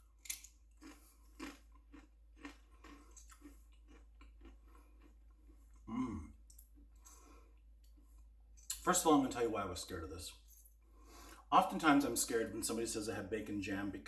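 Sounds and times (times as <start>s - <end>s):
chewing mouth clicks: 0.3s - 5.8s.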